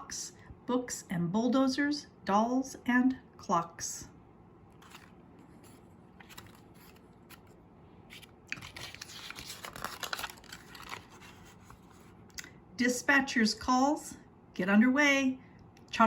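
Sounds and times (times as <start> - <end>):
book pages rustling: 4.7 - 12.3.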